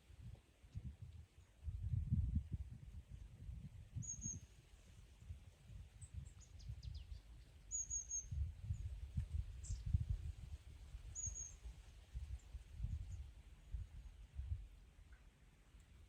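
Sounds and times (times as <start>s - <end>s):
wind on microphone: 0.0s - 14.8s
small bird chirping: 4.0s - 4.5s, 6.0s - 8.9s, 11.1s - 11.6s.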